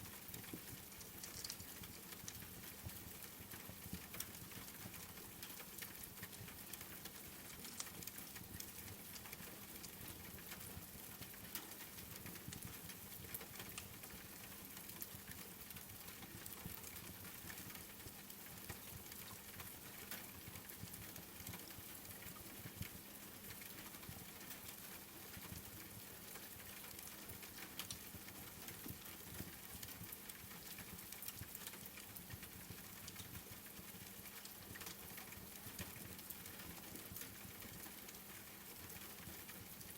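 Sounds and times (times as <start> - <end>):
rain patter: 0.0 - 39.9
wood fire crackling: 0.2 - 2.4.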